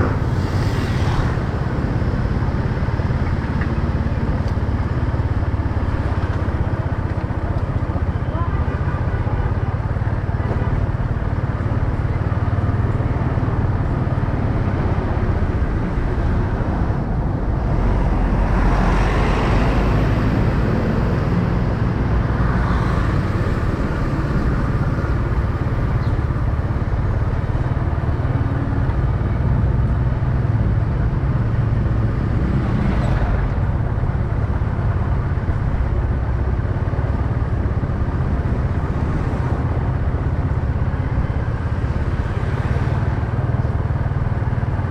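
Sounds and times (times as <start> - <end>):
loud rush of noise: 0.0 - 4.3
road and wind noise: 0.0 - 44.9
street traffic: 0.0 - 44.9.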